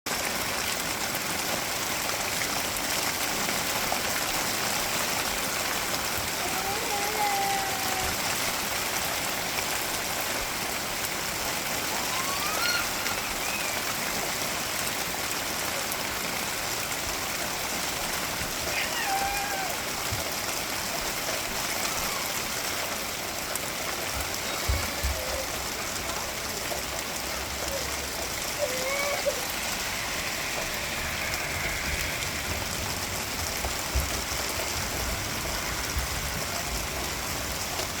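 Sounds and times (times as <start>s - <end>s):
steady rain falling: 0.1s - 38.0s
faint rising-and-falling calls: 11.8s - 14.1s, 27.9s - 35.0s.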